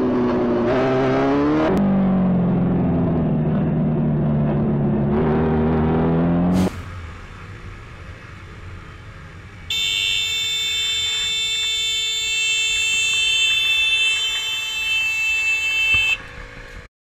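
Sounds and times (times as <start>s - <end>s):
road noise: 0.0s - 16.9s
vehicle horn blast: 9.7s - 16.3s.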